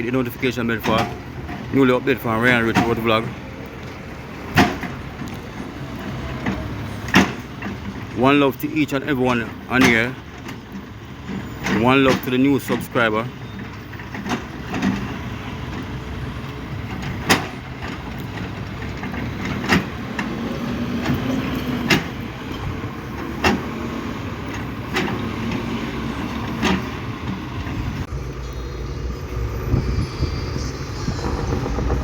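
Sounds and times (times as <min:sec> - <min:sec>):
low engine rumble: 0:00.0 - 0:32.0
low hum: 0:27.9 - 0:32.0.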